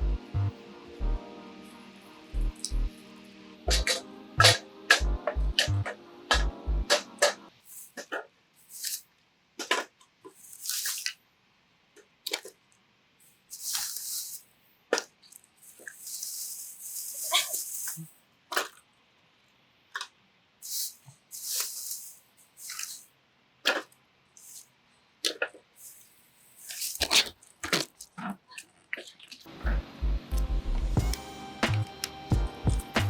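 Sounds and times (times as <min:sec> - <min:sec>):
hissy rustles or scrapes: 0:13.3 - 0:14.5, 0:15.6 - 0:18.1, 0:20.6 - 0:23.1.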